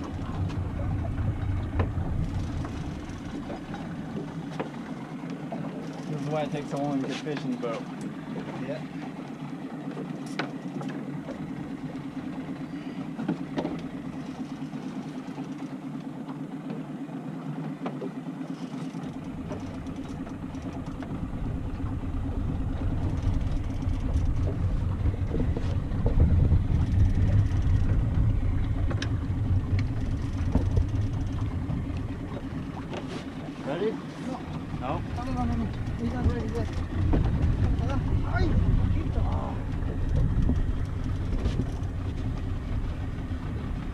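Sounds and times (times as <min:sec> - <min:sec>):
deep low rumble: 0:00.0 - 0:04.2, 0:19.3 - 0:32.9, 0:34.4 - 0:43.9
boat engine running: 0:00.0 - 0:43.9.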